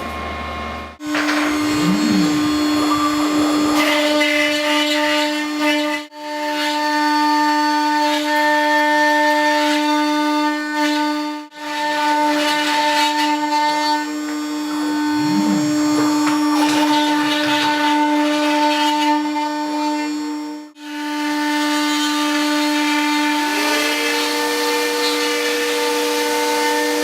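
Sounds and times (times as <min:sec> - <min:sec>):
router spindle whine milling wood: 0:00.0 - 0:27.0
lower tone rising and falling: 0:01.7 - 0:03.7.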